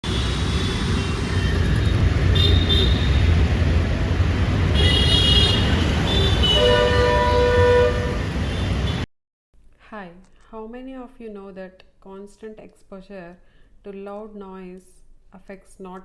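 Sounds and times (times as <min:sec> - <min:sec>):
vehicle horns honking: 0:00.0 - 0:03.4, 0:04.7 - 0:09.0
traffic engines rumbling: 0:00.0 - 0:09.1.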